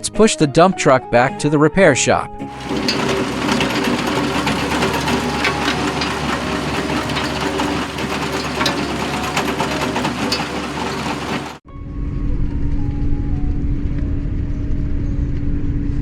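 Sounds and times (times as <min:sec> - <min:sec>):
excavator running with rattle: 0:02.5 - 0:11.6.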